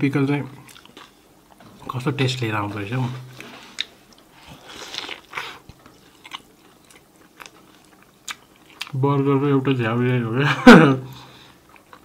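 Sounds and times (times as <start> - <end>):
chewing with wet mouth smacks: 3.4 - 9.0.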